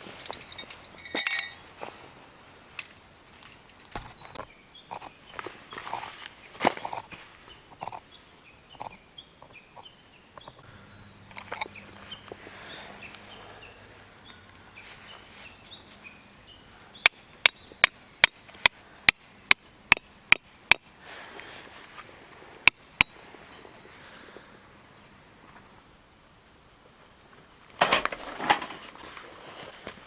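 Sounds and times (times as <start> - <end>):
birds chirping: 3.7 - 19.6, 20.4 - 25.8.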